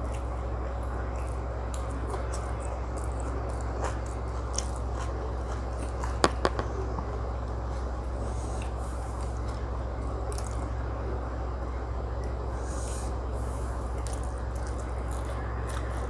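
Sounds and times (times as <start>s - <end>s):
close chewing and mouth sounds: 0.0s - 16.0s
steady low hum: 0.0s - 16.0s.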